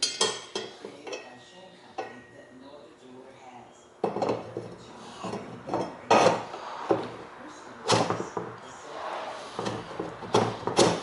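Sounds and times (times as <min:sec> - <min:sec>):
metal parts knocking and clunking: 0:09.6 - 0:11.0.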